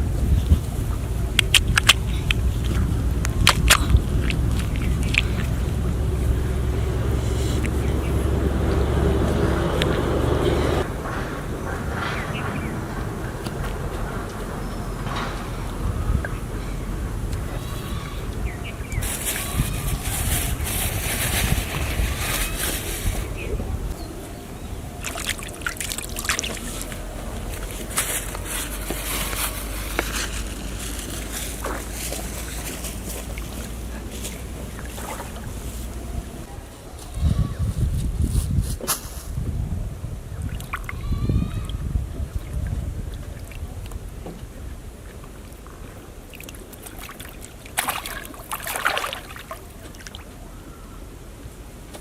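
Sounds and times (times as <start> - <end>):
water trickling and splashing: 0.0 - 10.9, 24.1 - 36.5, 40.3 - 50.5
steady low rumble: 0.0 - 46.2
low outdoor background: 0.0 - 52.0.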